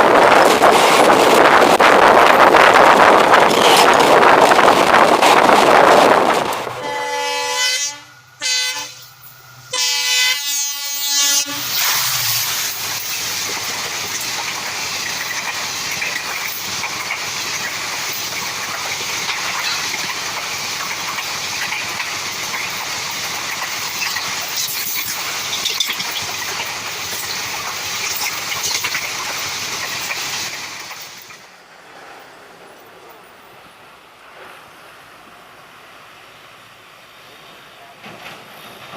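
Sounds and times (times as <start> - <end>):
train wheels rumbling on rails: 0.0 - 38.9
locomotive horn blasts: 6.8 - 9.1, 9.7 - 11.8.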